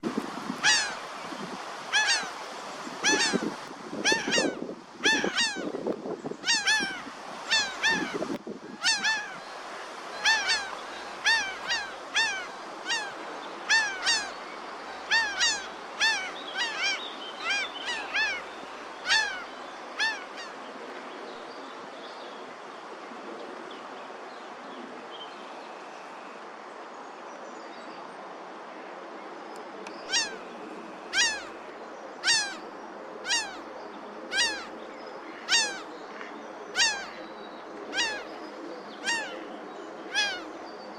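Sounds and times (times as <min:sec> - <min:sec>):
gulls calling: 0:00.0 - 0:20.6, 0:30.1 - 0:36.0, 0:36.6 - 0:40.6
steady background hiss: 0:00.0 - 0:40.9.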